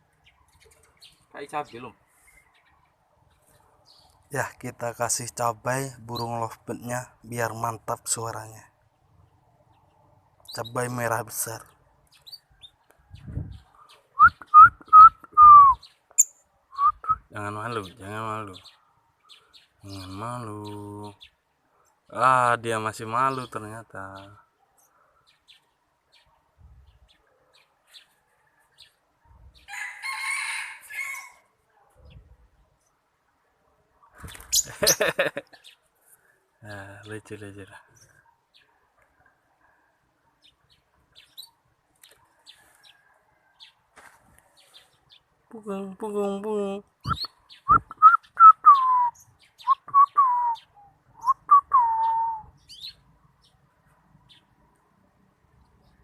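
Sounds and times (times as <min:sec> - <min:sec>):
faint high bird chirps: 0:09.0 - 0:22.2, 0:40.3 - 0:43.8, 0:47.0 - 0:53.6.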